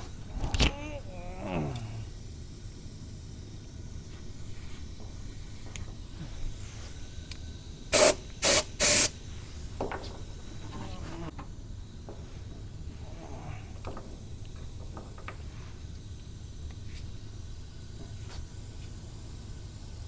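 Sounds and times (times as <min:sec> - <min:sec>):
spray gun hissing: 0:02.3 - 0:10.6.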